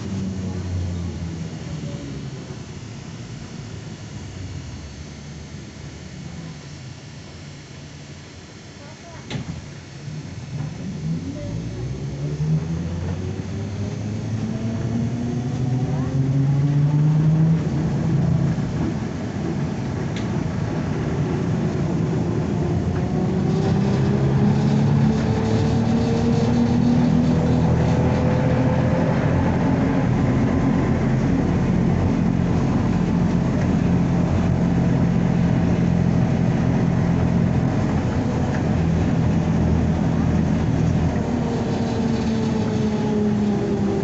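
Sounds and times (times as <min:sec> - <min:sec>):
road noise: 0:00.0 - 0:07.4, 0:09.9 - 0:44.0
trolleybus motor whine: 0:00.0 - 0:44.0
low hum: 0:09.6 - 0:44.0.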